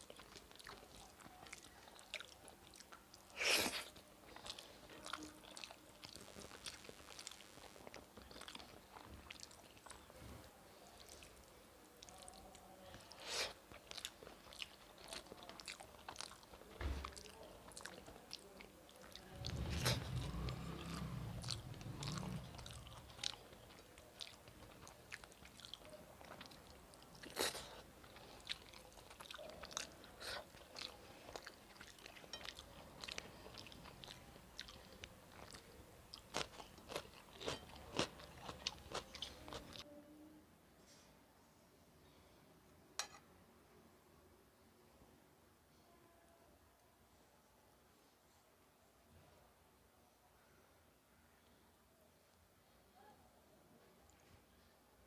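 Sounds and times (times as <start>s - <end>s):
person chewing with lip smacks: 12.0s - 39.8s.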